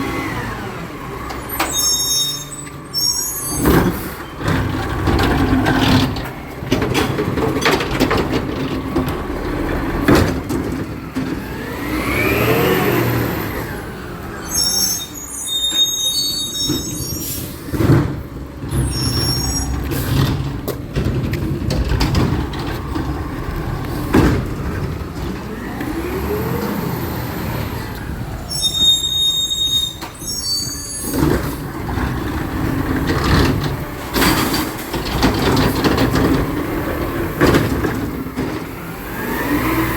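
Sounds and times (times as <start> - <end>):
truck engine revving: 0.0 - 1.9, 2.6 - 15.2, 17.3 - 29.7, 31.0 - 39.9
knocks and clatter: 3.6 - 11.7, 17.7 - 26.0, 31.1 - 39.0.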